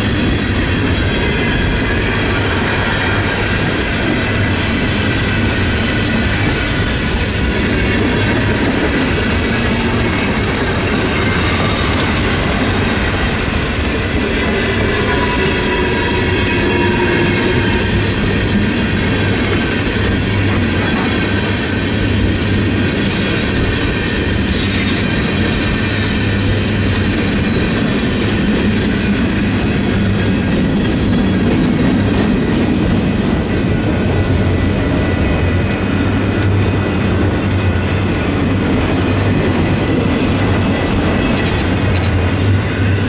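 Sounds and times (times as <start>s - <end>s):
train passing: 0.0s - 43.0s
high steady tones: 9.1s - 19.1s.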